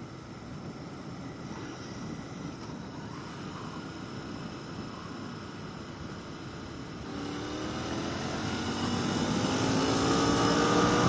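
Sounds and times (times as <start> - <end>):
motorcycle engine accelerating: 7.0 - 11.0.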